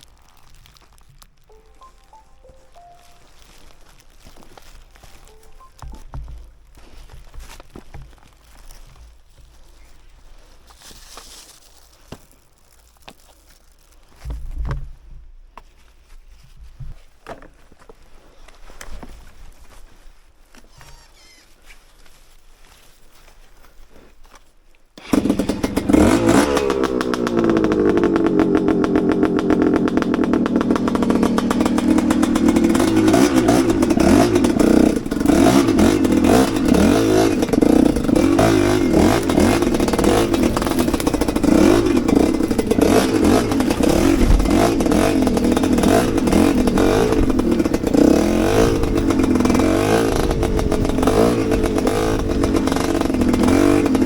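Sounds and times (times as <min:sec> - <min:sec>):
dirt bike engine starting and revving: 0:25.0 - 0:54.0.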